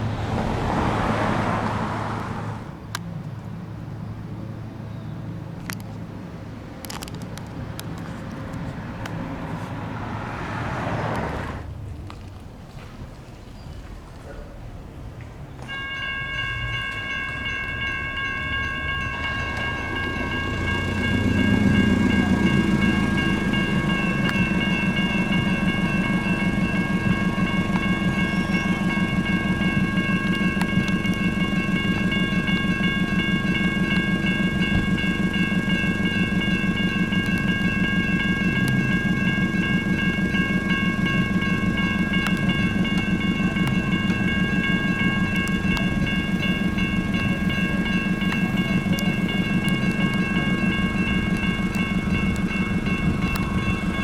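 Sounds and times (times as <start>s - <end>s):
railroad crossing electronic bell: 0.0s - 11.7s, 14.9s - 54.0s
lower louder ringing: 15.7s - 54.0s.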